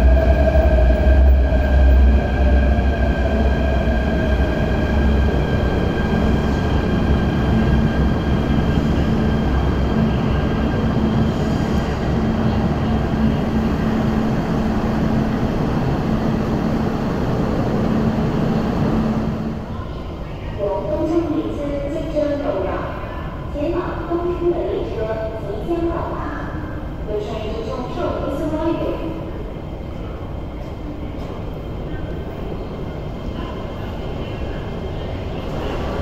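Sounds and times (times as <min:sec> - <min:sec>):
high whine from train: 0:00.0 - 0:23.4.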